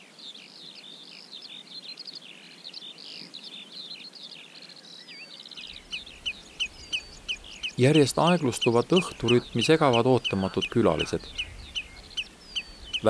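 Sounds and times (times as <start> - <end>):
birds chirping and whistling: 5.2 - 13.0
bird trill: 5.3 - 13.0.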